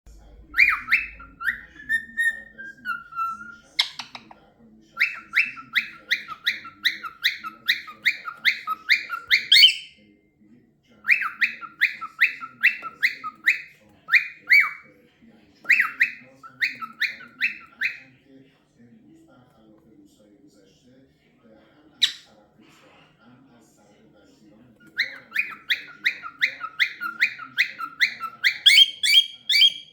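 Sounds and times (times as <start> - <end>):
cockatiel whistling: 0.2 - 4.3, 5.0 - 10.0, 11.1 - 14.8, 15.7 - 18.0, 24.9 - 29.9.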